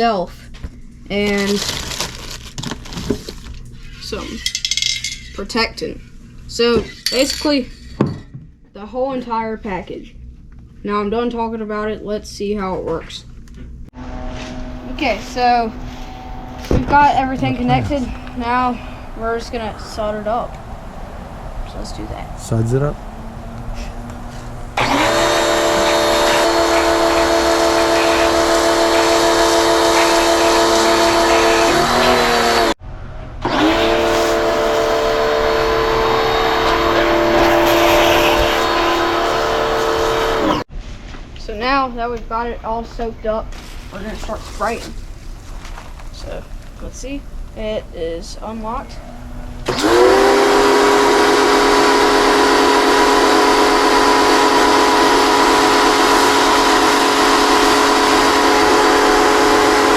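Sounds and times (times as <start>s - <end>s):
pressure washer motor whine: 14.0s - 32.8s, 33.4s - 40.7s, 48.7s - 59.9s.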